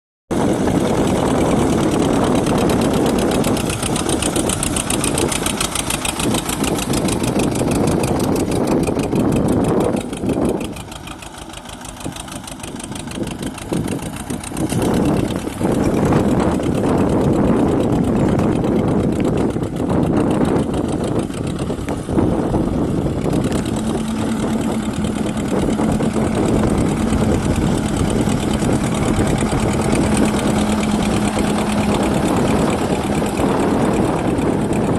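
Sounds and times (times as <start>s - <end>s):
tractor diesel engine running: 0.3s - 34.9s
steady tone: 21.3s - 34.9s.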